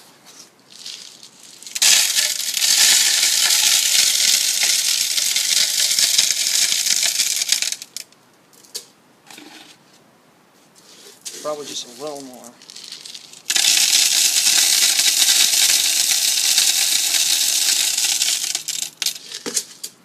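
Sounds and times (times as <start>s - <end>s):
bird seed rattling into feeder: 0.9s - 8.1s, 13.0s - 19.4s.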